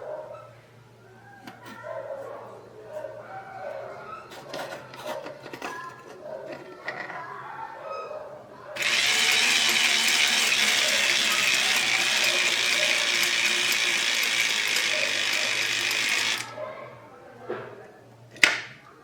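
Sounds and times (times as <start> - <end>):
small electric motor with gears: 8.8 - 16.6.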